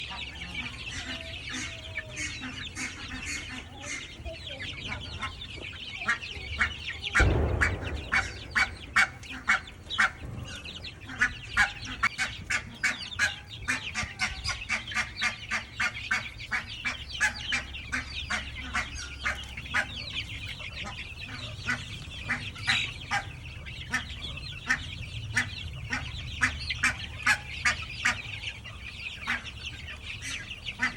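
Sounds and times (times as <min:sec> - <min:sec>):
baby chicks peeping: 0:00.0 - 0:30.9
dull thump: 0:07.2 - 0:10.5.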